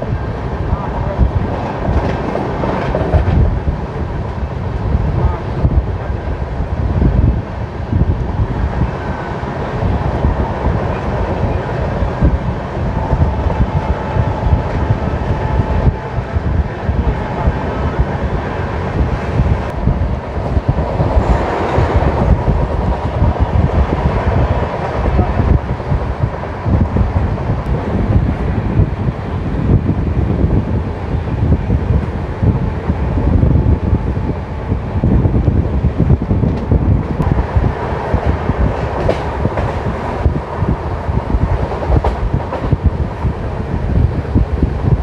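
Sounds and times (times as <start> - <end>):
train wheels rumbling on track: 0.0 - 45.0
wind on microphone: 0.0 - 45.0.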